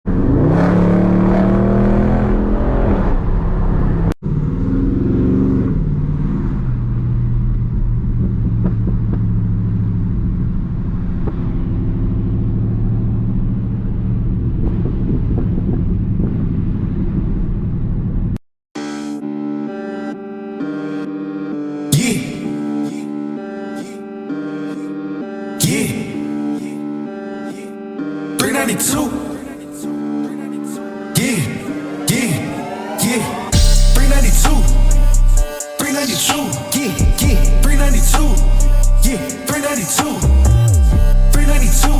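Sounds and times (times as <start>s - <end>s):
car engine accelerating: 0.0s - 18.4s, 31.4s - 35.4s, 37.0s - 41.9s.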